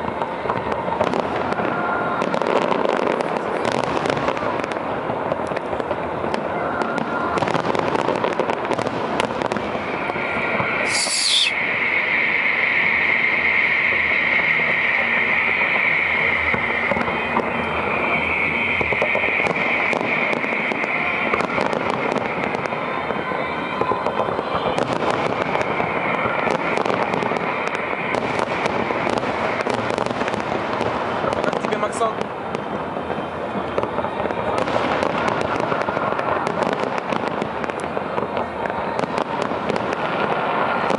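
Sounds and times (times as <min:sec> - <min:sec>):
falling firework whistle: 0:00.0 - 0:04.9, 0:05.6 - 0:40.9
fireworks bangs and crackles: 0:00.0 - 0:40.9
high-pitched hiss: 0:10.8 - 0:16.8.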